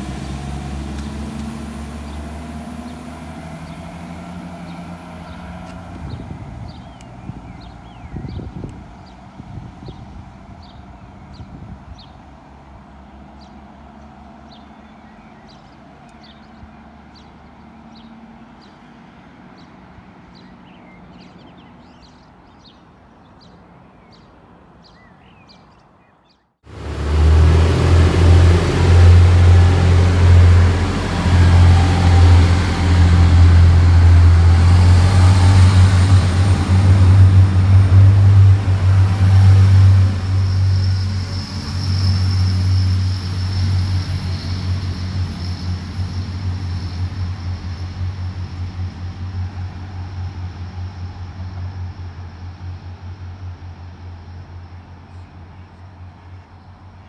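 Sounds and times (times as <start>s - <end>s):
wheel-on-rail noise: 0.0s - 8.0s, 26.7s - 57.0s
train engine drone: 0.0s - 21.9s, 26.7s - 57.0s
distant train: 0.0s - 26.0s, 26.7s - 57.0s
faint birdsong: 0.8s - 26.6s, 49.5s - 57.0s.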